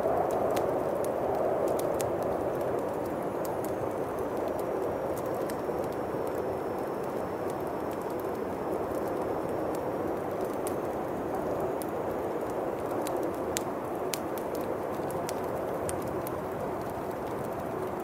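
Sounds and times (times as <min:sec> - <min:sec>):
wind blowing: 0:00.0 - 0:06.3
wood fire crackling: 0:00.0 - 0:18.0.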